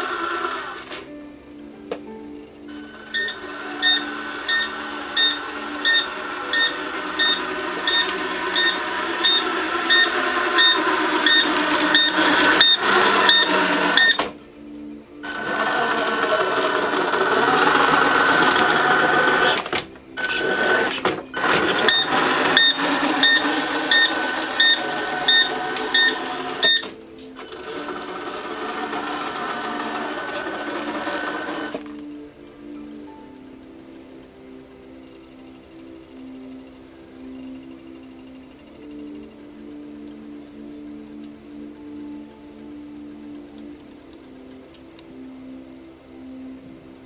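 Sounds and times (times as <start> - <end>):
steady running noise: 2.7 - 14.4, 15.2 - 32.1.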